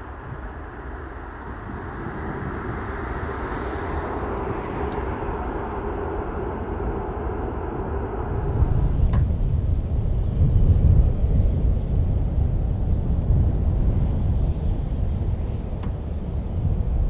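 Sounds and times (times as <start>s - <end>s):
jet engines rushing: 0.0s - 11.4s.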